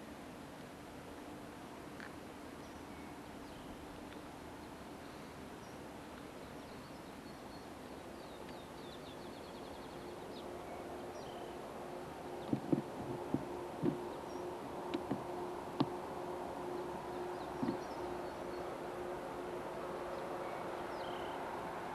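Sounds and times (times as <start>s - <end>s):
tape hiss: 0.0s - 21.9s
sharp knocks: 12.4s - 14.2s, 14.9s - 16.0s, 17.6s - 17.9s
faint bird chirps: 16.8s - 18.7s.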